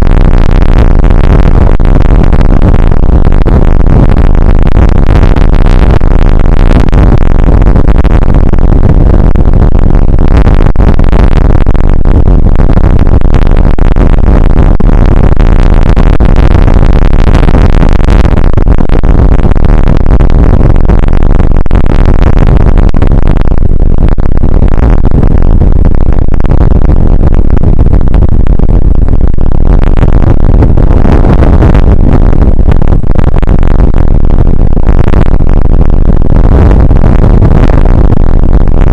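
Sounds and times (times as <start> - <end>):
distorted rain noise on microphone: 0.0 - 38.9.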